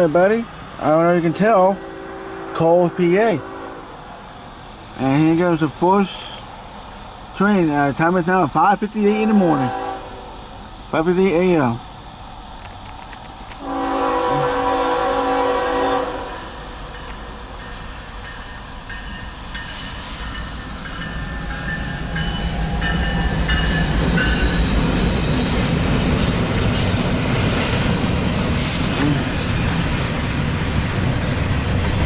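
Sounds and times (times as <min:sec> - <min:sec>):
train rumble: 0:00.0 - 0:32.0
locomotive air horn: 0:01.3 - 0:03.9, 0:09.2 - 0:10.4, 0:13.6 - 0:16.9
wheels squealing on rails: 0:13.6 - 0:32.0.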